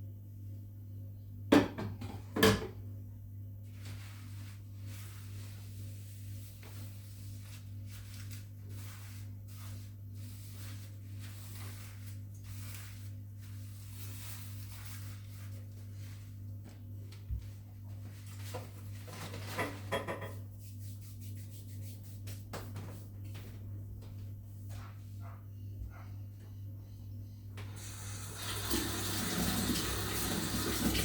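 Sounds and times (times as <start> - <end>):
soft rubbing and rustling: 3.6 - 19.6, 20.3 - 26.6.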